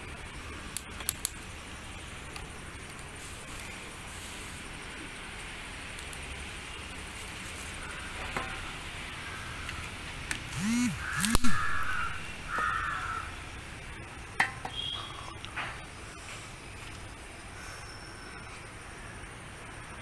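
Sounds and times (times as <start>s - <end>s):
outdoor background: 0.0s - 20.0s
crow cawing: 9.2s - 9.8s, 11.0s - 13.4s
sharp clicks: 9.7s - 11.8s.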